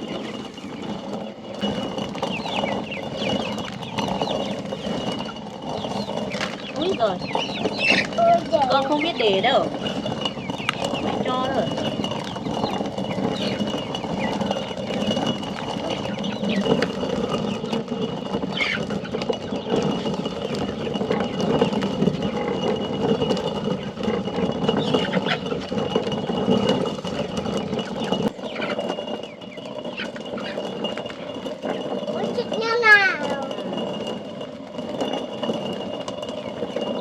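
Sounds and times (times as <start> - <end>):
stone mill grinding: 0.0 - 37.0.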